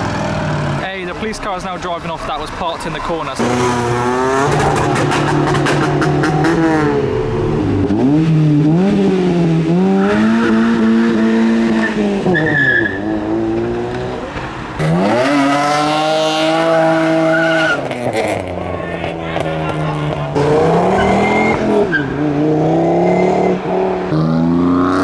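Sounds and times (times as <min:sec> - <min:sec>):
sharp exhaust pops: 0:00.0 - 0:07.0
car engines revving: 0:00.0 - 0:25.0.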